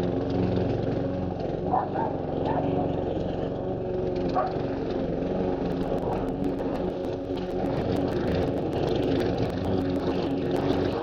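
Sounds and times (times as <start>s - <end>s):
lawn mower engine running: 0.0s - 11.0s
faint rapid ticks: 5.7s - 11.0s.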